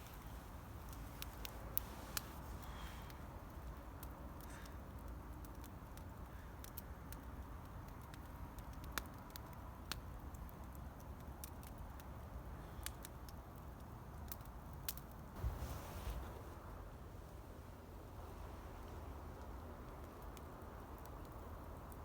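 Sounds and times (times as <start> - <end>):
rustle: 0.0 - 22.0
wind rumbling on microphone: 15.4 - 17.1.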